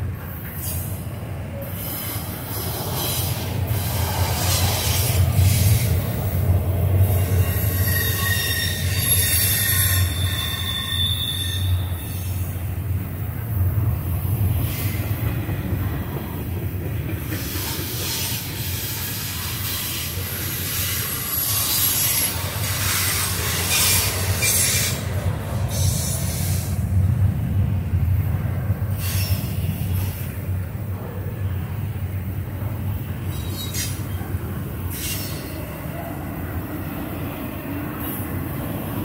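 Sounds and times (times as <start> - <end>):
freight train wheels rumbling: 0.0 - 39.0
high-pitched wheel squeal: 7.1 - 12.4, 33.3 - 34.2.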